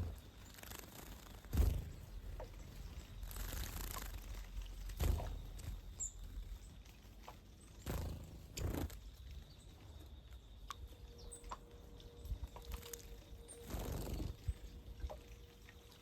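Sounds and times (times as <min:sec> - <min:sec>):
birds splashing in water: 0:00.0 - 0:09.3.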